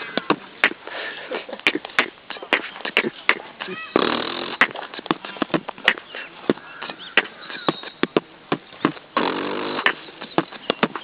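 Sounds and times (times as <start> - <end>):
beatboxing clicks and hits: 0.1 - 11.0
buzzing pitched mouth sound: 1.6 - 6.0, 8.5 - 10.1.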